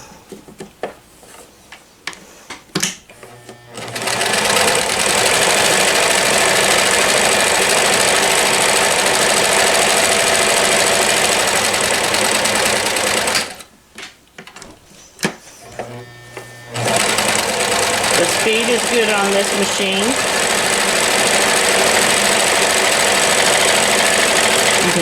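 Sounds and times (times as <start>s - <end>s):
sewing machine running fast: 3.2s - 13.6s, 15.6s - 25.0s.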